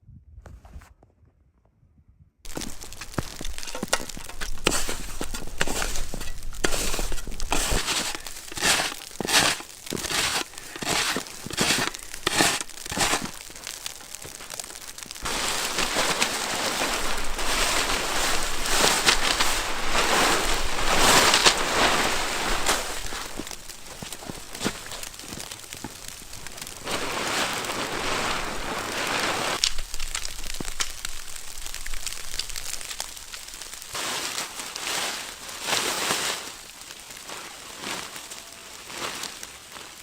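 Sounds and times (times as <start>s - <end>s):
wind rumble on microphone: 0.0s - 2.4s
footsteps crunching in snow: 2.5s - 40.0s.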